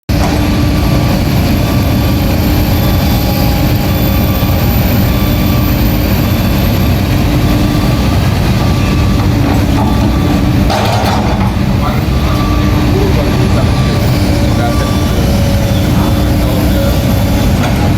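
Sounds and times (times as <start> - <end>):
excavator diesel engine rumbling: 0.1 - 17.9
faint high whine: 0.2 - 10.7, 11.4 - 17.9.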